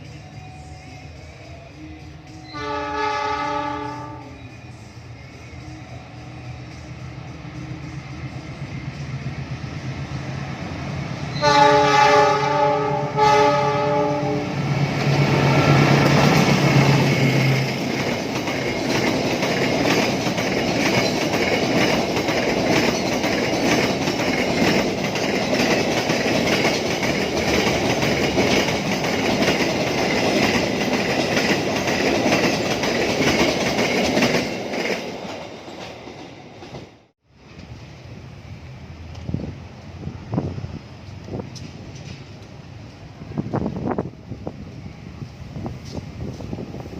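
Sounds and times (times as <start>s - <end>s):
train horn blasts: 2.5s - 4.5s, 11.3s - 14.6s
train wheels clacking over rails: 11.3s - 37.7s.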